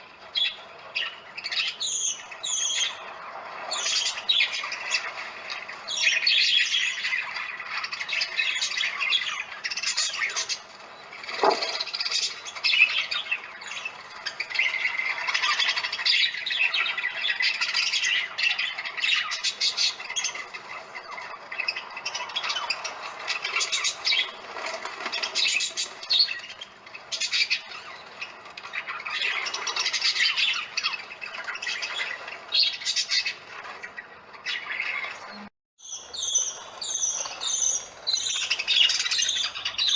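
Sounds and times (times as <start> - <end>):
parakeets screeching: 0.0 - 39.9.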